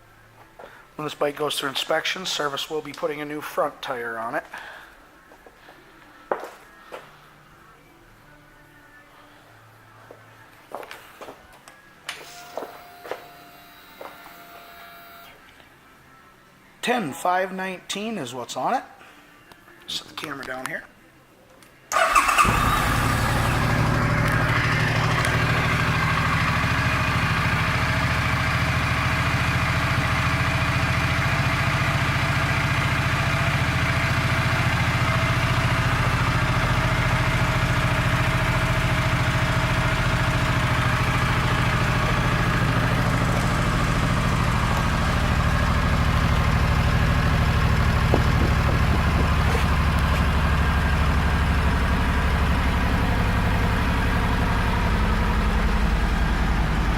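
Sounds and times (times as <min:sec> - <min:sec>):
motorcycle engine idling: 0:22.0 - 0:56.9.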